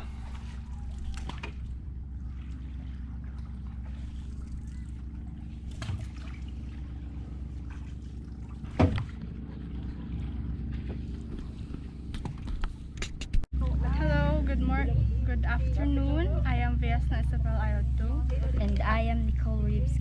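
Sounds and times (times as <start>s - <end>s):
faint water splashing: 0.0s - 13.0s
boat motor humming: 0.0s - 20.0s.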